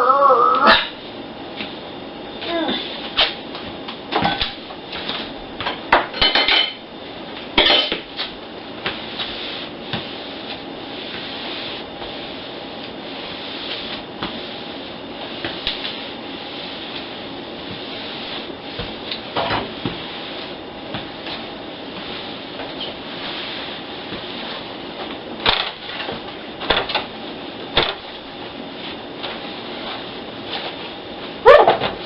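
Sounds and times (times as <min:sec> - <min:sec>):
dishes and cutlery clinking: 0:06.1 - 0:06.8, 0:07.6 - 0:08.0.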